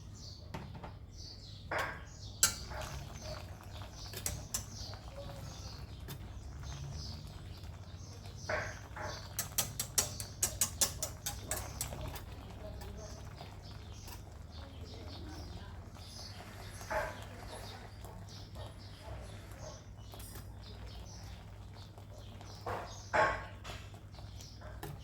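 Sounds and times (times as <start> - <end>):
light clicks and taps: 8.5 - 13.0.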